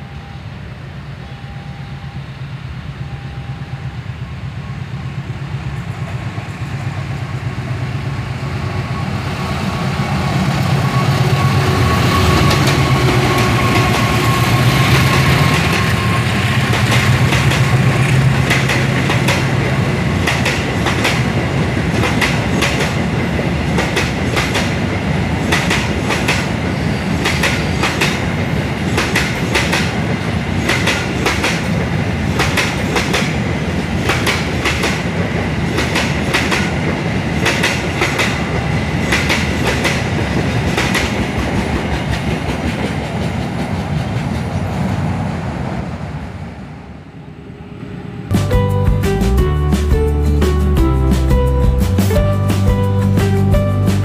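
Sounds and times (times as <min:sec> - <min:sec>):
diesel locomotive engine drone: 0:00.0 - 0:54.0
wheels clacking over rail joints: 0:10.6 - 0:33.4.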